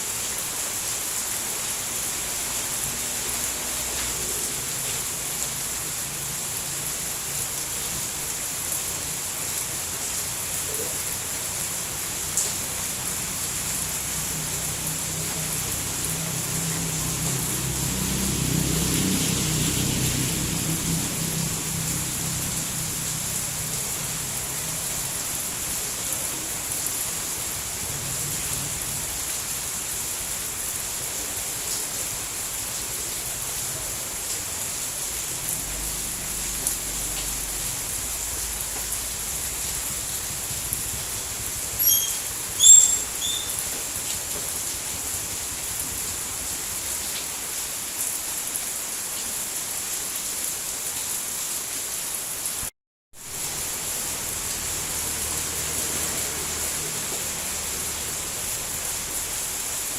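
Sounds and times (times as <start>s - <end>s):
steady rainfall: 0.0s - 59.9s
short high chirp: 41.8s - 43.6s.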